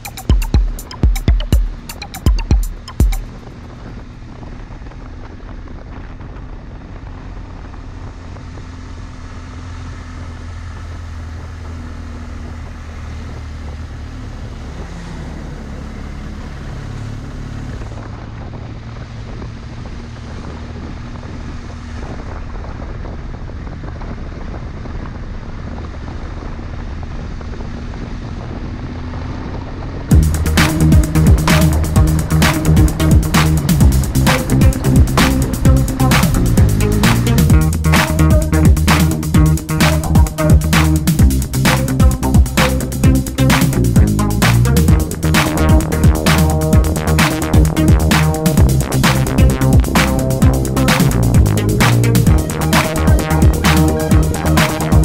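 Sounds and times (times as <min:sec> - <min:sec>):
motorcycle engine running: 0:00.0 - 0:55.0
wind rush on microphone: 0:03.3 - 0:09.1, 0:17.0 - 0:37.9.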